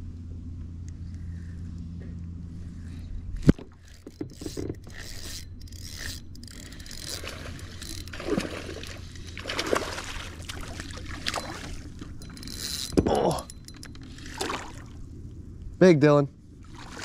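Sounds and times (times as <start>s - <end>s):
fishing gear knocks and scrapes: 3.4s - 9.3s, 11.0s - 14.6s.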